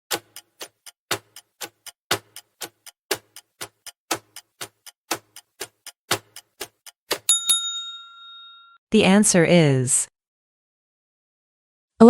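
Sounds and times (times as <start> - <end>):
countdown timer ticking: 0.1 - 7.8.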